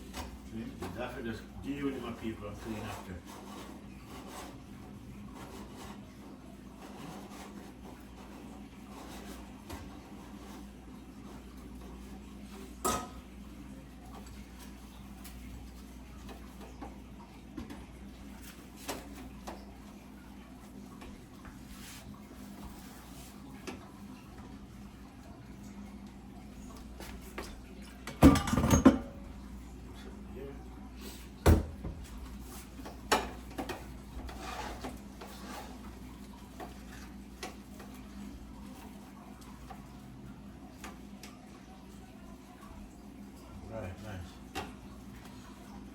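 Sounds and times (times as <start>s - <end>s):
pots and utensils clinking: 12.7s - 13.3s, 27.3s - 29.4s, 32.8s - 38.0s
kitchen clicks and knocks: 27.3s - 29.3s, 32.8s - 35.8s.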